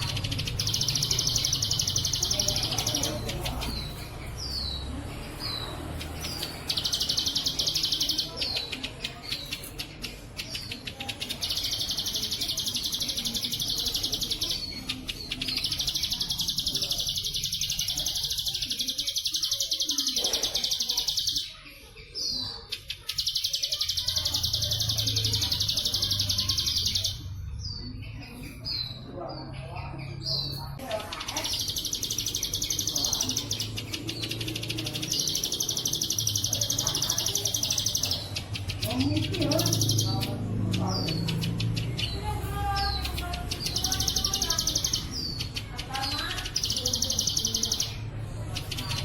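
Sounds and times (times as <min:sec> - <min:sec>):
bird singing buzzing trills: 0:00.0 - 0:21.4.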